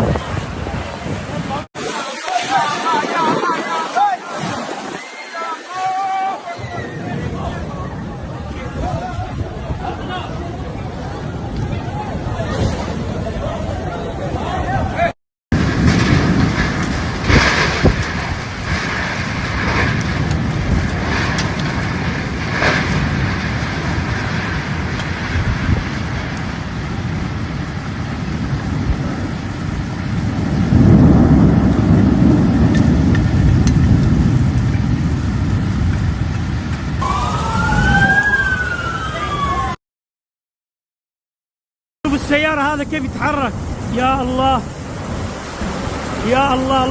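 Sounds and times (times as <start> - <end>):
heavy rain: 0.0 - 39.8, 42.1 - 46.9
strong wind: 0.0 - 39.8, 42.1 - 46.9
deep rumbling: 6.6 - 39.8
wailing siren: 37.0 - 39.8.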